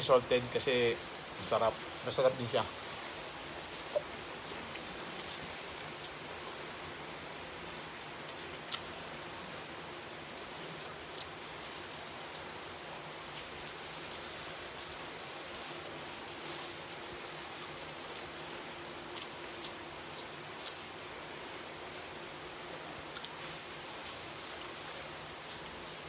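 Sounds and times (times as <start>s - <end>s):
plastic glove handling food: 0.0s - 21.0s, 23.2s - 26.0s
steady hiss: 0.0s - 26.0s
chewing fried chicken: 0.1s - 21.0s, 23.1s - 26.0s.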